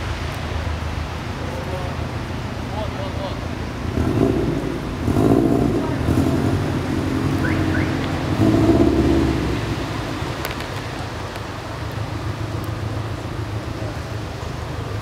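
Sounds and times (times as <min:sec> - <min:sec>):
car engine revving hard: 0:03.8 - 0:10.2.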